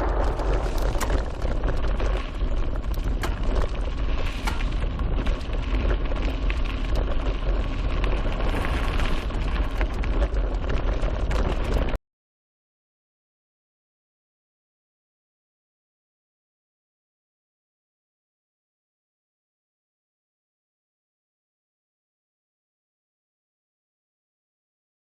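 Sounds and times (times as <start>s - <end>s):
tyres rolling on dirt: 0.0s - 11.9s
wind buffeting microphone: 0.0s - 12.0s.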